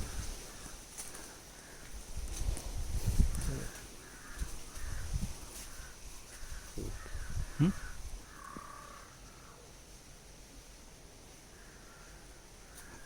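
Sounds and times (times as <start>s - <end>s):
low rumbling wind noise: 0.0s - 0.8s, 1.6s - 9.0s
birds rasping calls: 3.4s - 9.6s.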